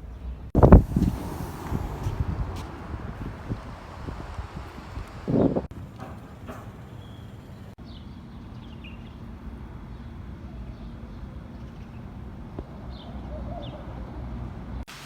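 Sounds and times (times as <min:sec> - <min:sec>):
steady low rumble: 0:00.5 - 0:06.8.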